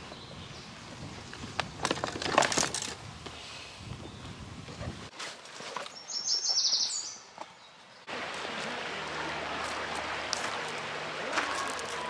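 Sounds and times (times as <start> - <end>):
bird chirps: 5.9 - 7.8
river water rushing: 8.1 - 12.0.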